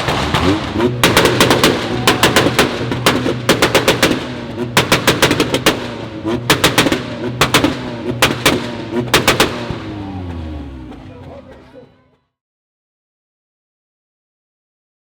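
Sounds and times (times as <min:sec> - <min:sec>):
exhaust popping and banging: 0:00.0 - 0:12.0
car engine revving: 0:00.0 - 0:12.2.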